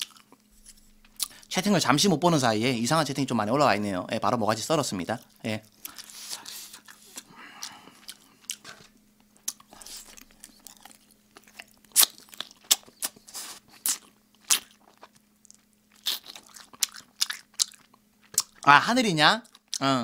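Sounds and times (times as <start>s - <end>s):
open-mouth chewing with wet smacks: 9.4s - 18.7s.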